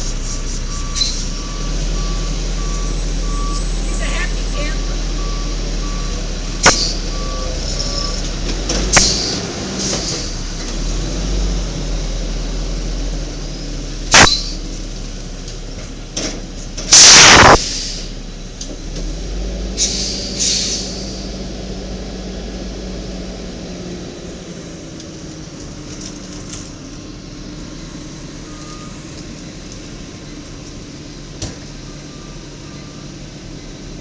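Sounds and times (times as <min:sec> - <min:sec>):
air brakes hissing: 0:00.0 - 0:01.4, 0:16.9 - 0:18.2, 0:19.8 - 0:21.5
backup beeper: 0:00.0 - 0:08.2, 0:17.0 - 0:17.6.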